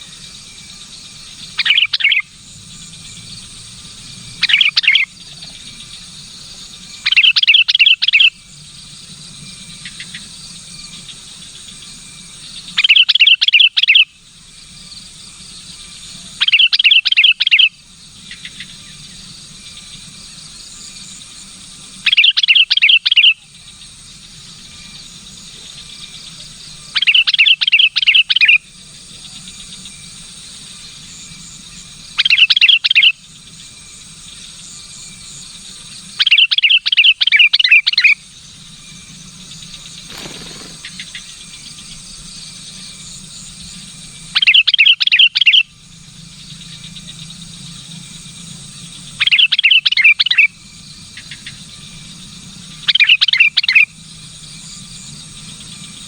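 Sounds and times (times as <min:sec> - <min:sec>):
bulbul calling: 0:00.0 - 0:08.4, 0:12.4 - 0:14.2, 0:16.1 - 0:18.8, 0:22.0 - 0:23.6, 0:24.4 - 0:29.9, 0:30.7 - 0:33.4, 0:36.0 - 0:41.7, 0:44.3 - 0:45.8, 0:49.0 - 0:54.0.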